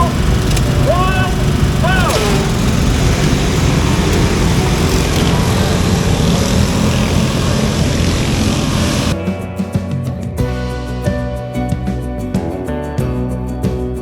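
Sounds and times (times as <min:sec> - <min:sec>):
riding lawn mower engines racing: 0:00.0 - 0:09.2
music: 0:00.0 - 0:14.0.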